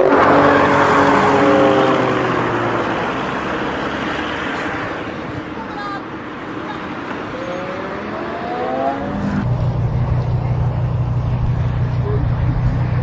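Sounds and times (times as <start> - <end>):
car engine accelerating: 0.0 - 5.5, 6.3 - 13.0
steady low drone: 7.3 - 13.0.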